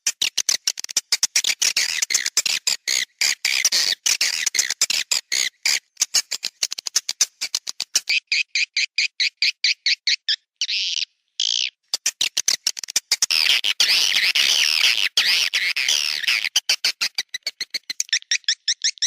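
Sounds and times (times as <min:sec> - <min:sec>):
chorus of twittering: 0:08.0 - 0:11.8, 0:13.3 - 0:19.0.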